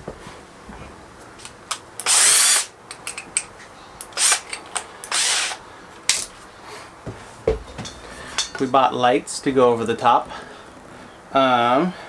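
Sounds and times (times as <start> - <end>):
power drill running: 2.0 - 2.7, 4.1 - 5.6.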